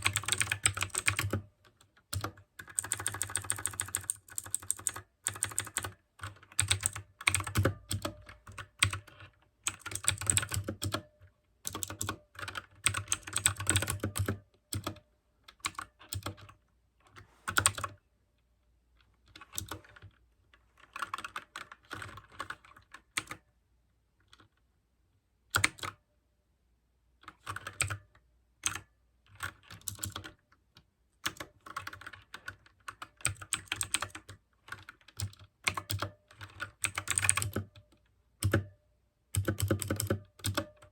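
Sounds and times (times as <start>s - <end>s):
clicky mechanical keyboard typing: 0.0s - 18.0s, 19.0s - 20.2s, 20.8s - 23.5s, 25.5s - 26.0s, 27.2s - 40.9s.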